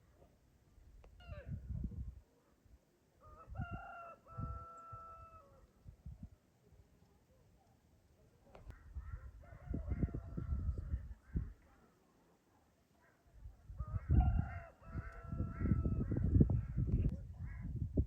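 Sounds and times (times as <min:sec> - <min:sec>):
rooster crowing: 0:03.2 - 0:05.6, 0:09.4 - 0:10.8, 0:13.8 - 0:16.2.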